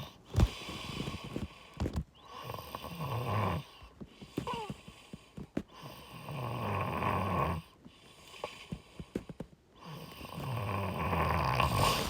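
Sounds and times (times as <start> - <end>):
person breathing raspily: 11.4 - 12.0.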